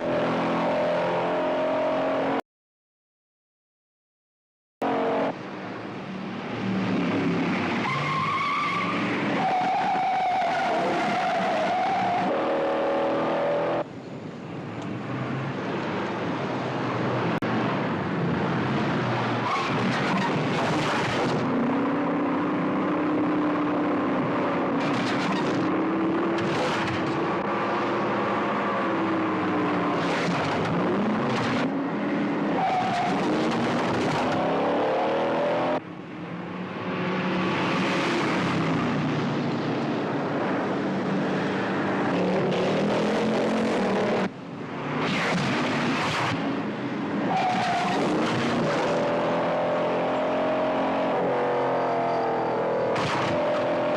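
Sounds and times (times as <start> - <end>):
car engines revving hard: 6.2 - 13.9, 18.2 - 35.8, 36.6 - 53.9.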